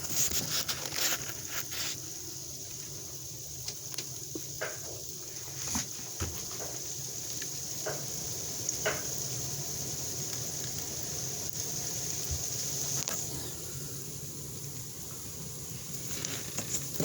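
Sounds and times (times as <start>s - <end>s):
faint ticks: 10.2s - 13.2s.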